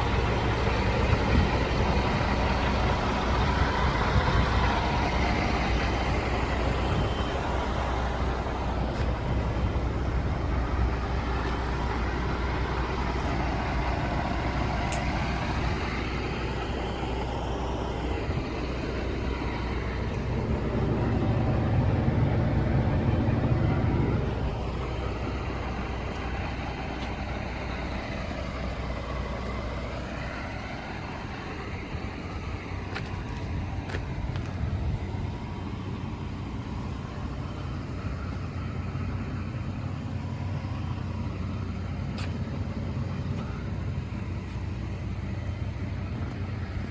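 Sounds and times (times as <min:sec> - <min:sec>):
truck diesel engine running: 0:00.0 - 0:46.9.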